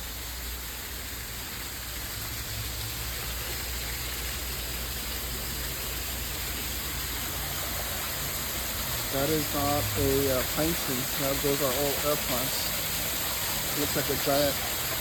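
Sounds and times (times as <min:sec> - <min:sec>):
steady hissing rushing noise: 0:05.9 - 0:15.0.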